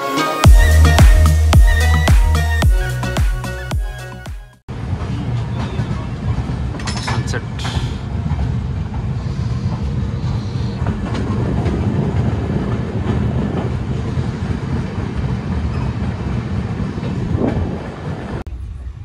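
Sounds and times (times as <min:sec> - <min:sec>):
wheels rumbling on rails: 0:04.7 - 0:19.0.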